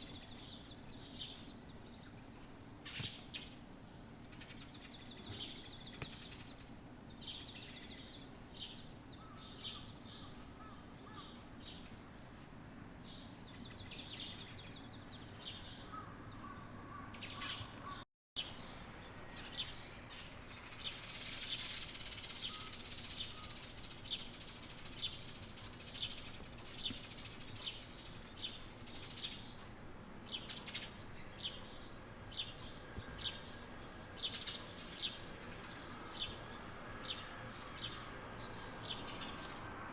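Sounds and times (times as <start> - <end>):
small songbirds chirping: 0.0 - 39.9
dense continuous twittering: 18.7 - 29.6.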